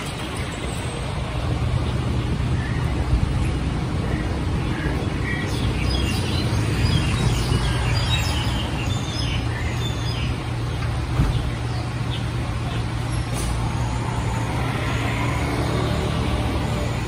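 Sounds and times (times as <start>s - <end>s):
road traffic rumble: 0.0s - 17.0s
small birds chirping: 2.6s - 13.3s.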